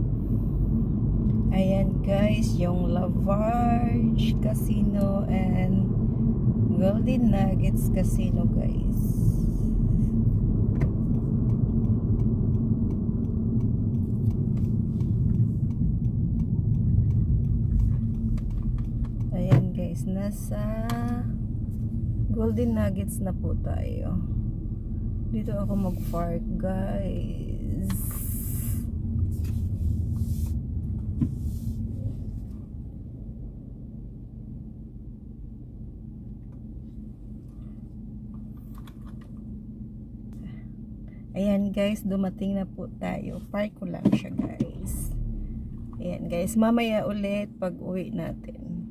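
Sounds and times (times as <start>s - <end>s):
car road and engine rumble: 0.0s - 48.9s
faint light ticks: 10.8s - 19.4s.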